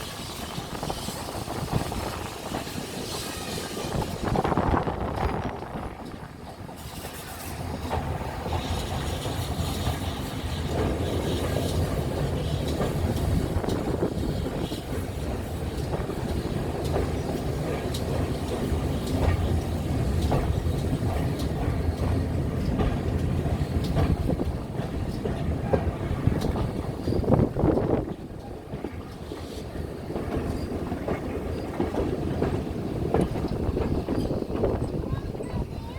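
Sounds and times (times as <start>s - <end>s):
train rumbling on track: 0.0s - 35.9s.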